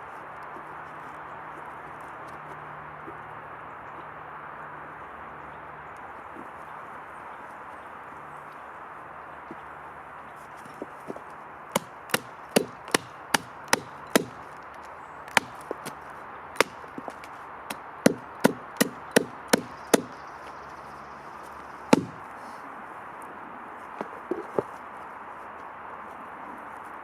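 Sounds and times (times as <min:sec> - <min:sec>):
hand tool knocking on wood: 0:11.7 - 0:14.4, 0:15.3 - 0:16.0, 0:16.6 - 0:17.3, 0:18.1 - 0:20.2, 0:21.9 - 0:22.2.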